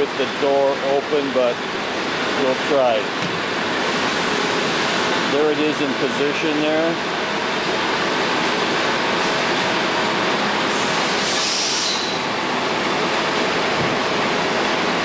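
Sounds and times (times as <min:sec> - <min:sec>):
machine shop din: 0:00.0 - 0:15.0
high hiss of air: 0:10.7 - 0:12.2.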